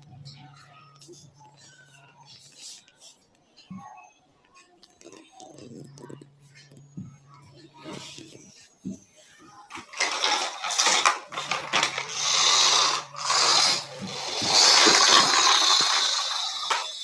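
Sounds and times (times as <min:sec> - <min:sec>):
small mechanism rattling and whirring: 0:09.8 - 0:17.0.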